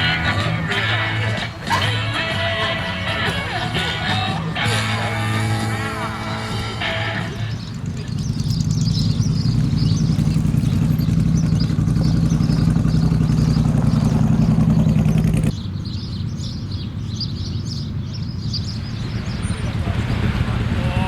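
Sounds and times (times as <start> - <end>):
birds chirping: 0.0 - 21.0
motorcycle engine idling: 0.0 - 21.0.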